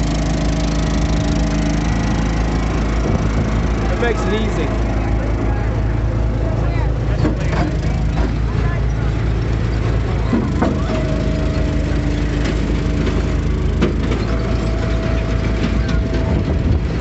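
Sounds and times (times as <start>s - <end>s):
log splitter engine running: 0.0s - 17.0s
held higher tone: 10.7s - 17.0s
sharp knocks: 12.2s - 16.9s.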